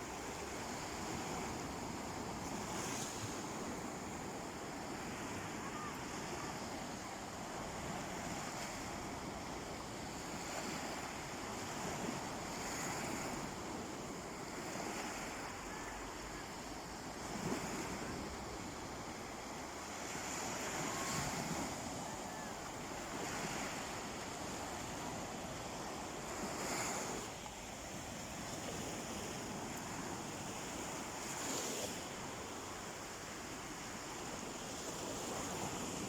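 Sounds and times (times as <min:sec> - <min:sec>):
sea waves breaking on beach: 0:00.0 - 0:36.0.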